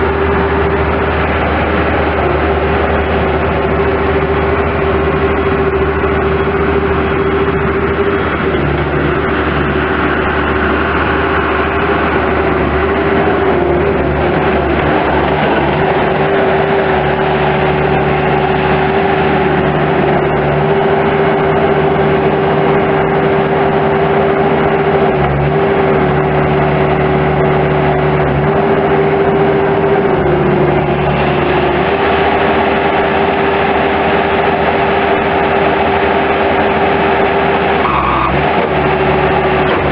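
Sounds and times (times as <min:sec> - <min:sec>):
diesel engine running with whine: 0:00.0 - 0:39.9.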